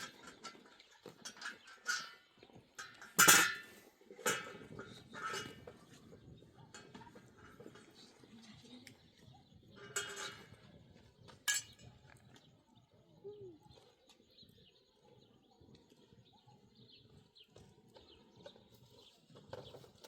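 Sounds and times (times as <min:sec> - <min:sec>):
faint bird chirping: 0:04.8 - 0:20.0.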